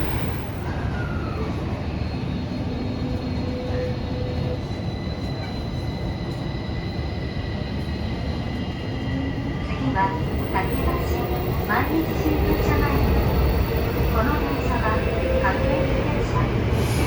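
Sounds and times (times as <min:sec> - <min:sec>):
subway train wheels rumbling: 0:00.0 - 0:17.0.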